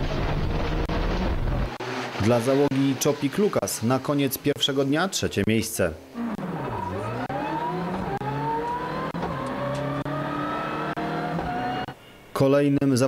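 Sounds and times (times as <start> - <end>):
rally car engine accelerating: 0.0 - 4.5, 6.1 - 11.9.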